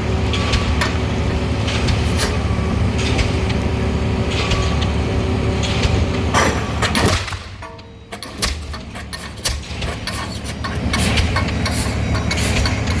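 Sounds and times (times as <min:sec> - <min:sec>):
pile-driving rig rumble: 0:00.0 - 0:13.0
pile hammer bangs: 0:00.2 - 0:13.0.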